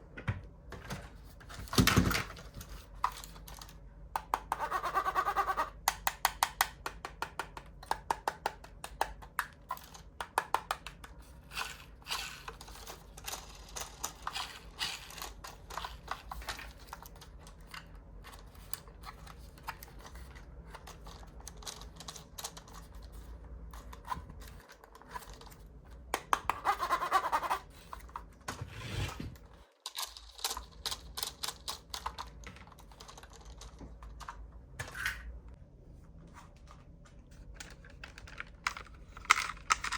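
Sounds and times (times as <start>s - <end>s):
toy cars clicking and tapping: 5.7s - 23.0s, 29.8s - 34.4s, 37.6s - 39.9s.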